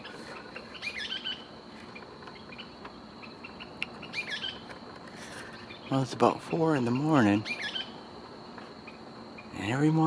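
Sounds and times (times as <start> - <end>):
bird chirping: 0.0 - 8.0.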